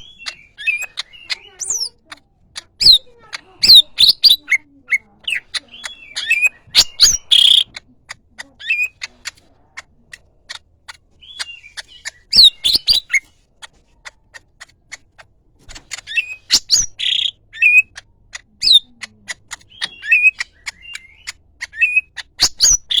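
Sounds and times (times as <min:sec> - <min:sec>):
bird singing sharp chips and whistles: 0:00.0 - 0:04.6, 0:05.3 - 0:07.8, 0:08.6 - 0:09.1, 0:11.2 - 0:13.3, 0:15.9 - 0:23.0.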